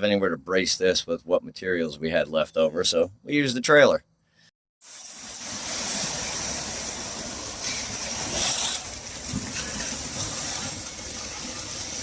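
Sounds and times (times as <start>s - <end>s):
broad hissing noise: 4.8s - 11.6s.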